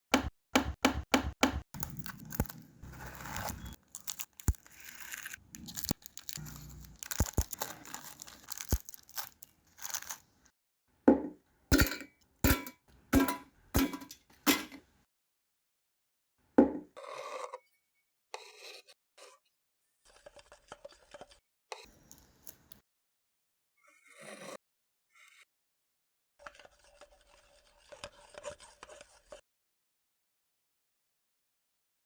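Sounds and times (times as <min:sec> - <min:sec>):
packaging crinkling and tearing: 0:01.8 - 0:10.4
biscuits snapping and crunching: 0:01.8 - 0:10.5.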